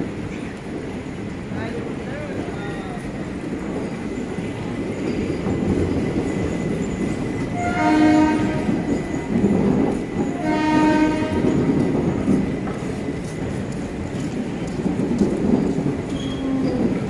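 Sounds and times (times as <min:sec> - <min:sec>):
train coaches rolling past: 0:00.0 - 0:17.0
train horn blasts: 0:07.6 - 0:08.9, 0:10.4 - 0:11.6.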